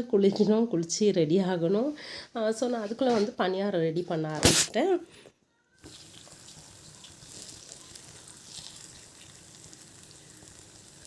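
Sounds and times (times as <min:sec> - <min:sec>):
batter sizzling in oil: 0:05.8 - 0:11.0.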